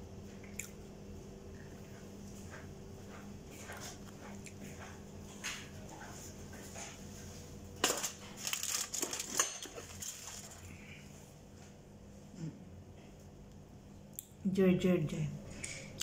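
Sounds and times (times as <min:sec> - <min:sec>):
chewing with mouth clicks: 0:00.3 - 0:00.8
sharp crunching and crackling: 0:07.8 - 0:10.7.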